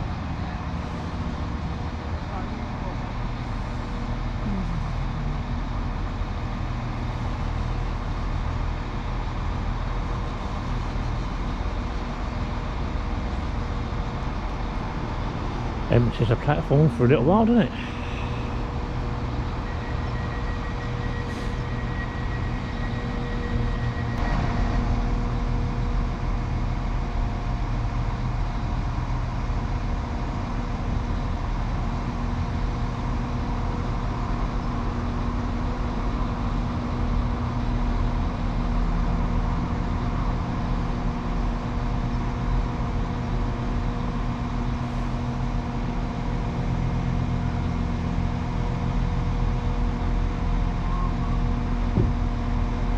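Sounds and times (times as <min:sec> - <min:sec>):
diesel train engines idling: 0:00.0 - 0:52.9
thin high steady tone: 0:19.4 - 0:24.2.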